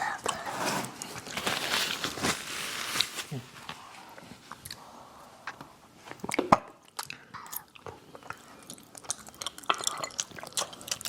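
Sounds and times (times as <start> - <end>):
wet mouth clicks and smacks: 6.3 - 11.0
chewing and biting food: 7.0 - 11.0.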